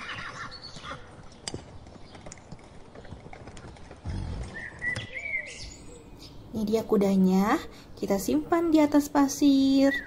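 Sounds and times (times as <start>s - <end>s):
horse hooves clip-clopping: 0.0s - 5.4s.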